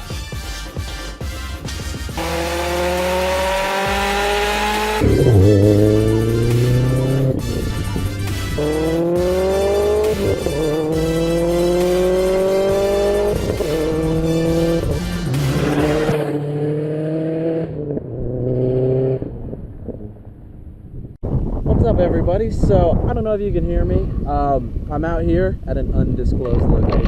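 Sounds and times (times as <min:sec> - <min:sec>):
music: 0:00.0 - 0:02.2, 0:03.1 - 0:16.2
car engine accelerating through gears: 0:02.2 - 0:20.1.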